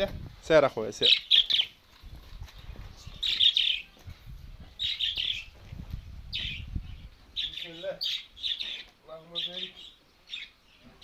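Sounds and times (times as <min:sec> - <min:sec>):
budgerigars chirping: 0:01.0 - 0:01.8, 0:03.2 - 0:03.9, 0:04.8 - 0:05.6, 0:06.3 - 0:10.8.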